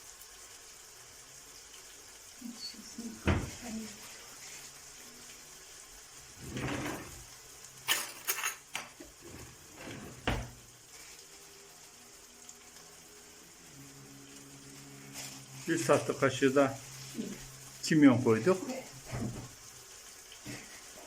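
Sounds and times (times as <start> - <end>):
utensil clinking on cookware: 7.9 - 9.1.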